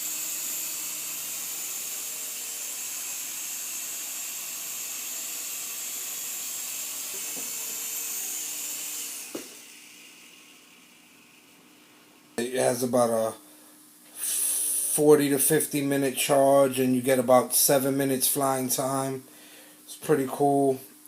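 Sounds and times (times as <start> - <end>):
toy helicopter rotors whirring: 0.0 - 10.7.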